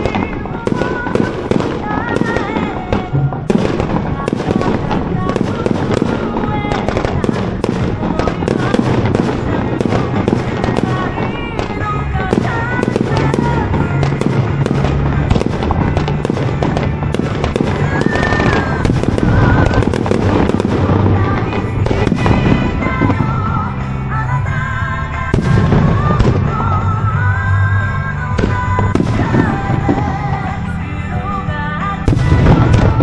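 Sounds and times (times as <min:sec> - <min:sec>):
firework shells bursting: 0:00.0 - 0:23.8
music with melody and bass: 0:00.0 - 0:33.0.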